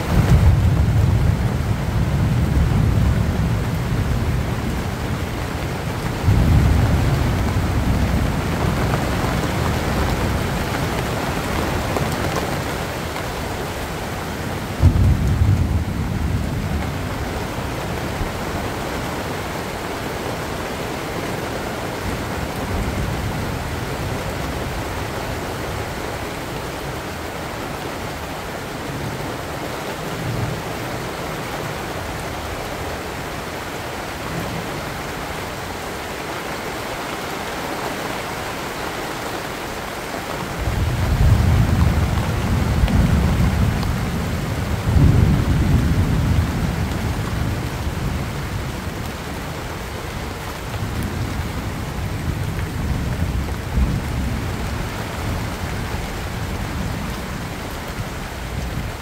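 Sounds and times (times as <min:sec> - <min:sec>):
thunder rumbling: 0:00.0 - 0:19.4, 0:40.5 - 0:59.0
rain on broad leaves: 0:00.0 - 0:59.0.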